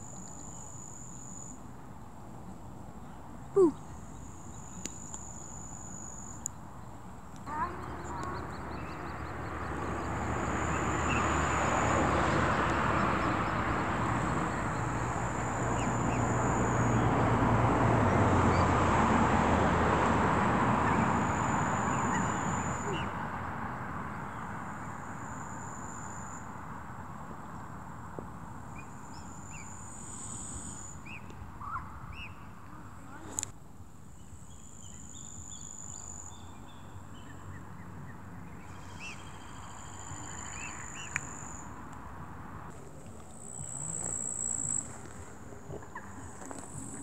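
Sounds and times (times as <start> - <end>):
vehicle passing on road: 7.4 - 33.5, 36.8 - 47.0.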